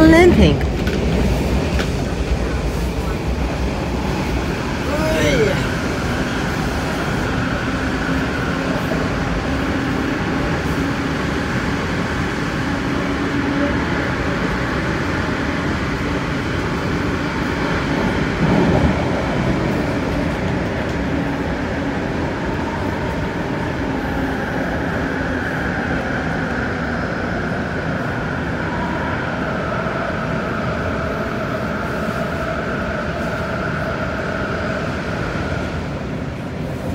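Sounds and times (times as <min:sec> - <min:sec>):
train wheels rumbling on rail: 0:00.0 - 0:36.9.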